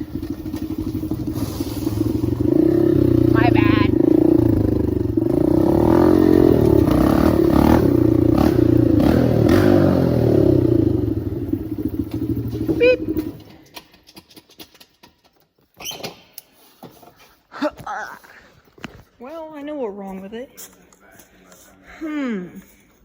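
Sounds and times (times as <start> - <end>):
dirt bike engine revving: 0.0 - 13.5.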